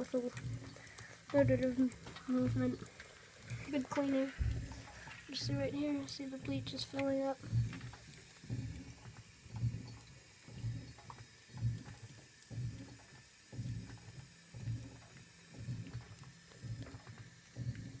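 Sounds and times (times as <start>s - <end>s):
washing machine agitating: 0.0s - 18.0s
water sloshing: 0.0s - 18.0s.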